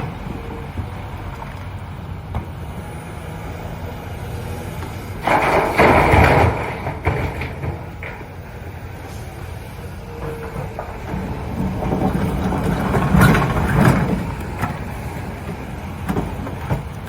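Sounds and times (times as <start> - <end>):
excavator engine running: 0.0 - 17.0
concrete scraping and crunching: 5.2 - 8.3.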